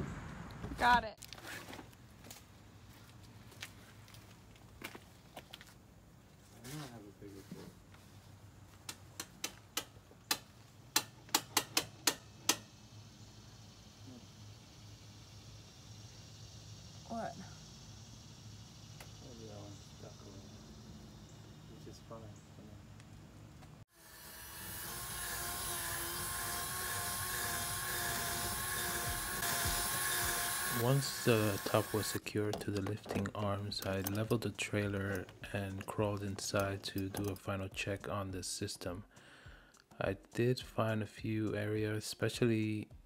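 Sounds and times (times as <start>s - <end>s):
cordless drill whining: 24.0s - 32.2s.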